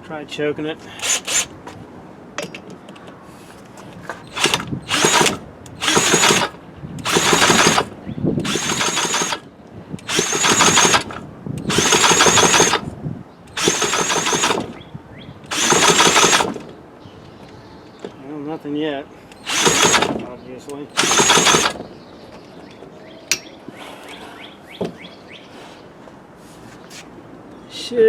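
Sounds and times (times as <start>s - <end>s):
chainsaw pull starter whirring: 1.0s - 1.6s, 4.2s - 14.8s, 15.5s - 16.8s, 19.3s - 21.9s.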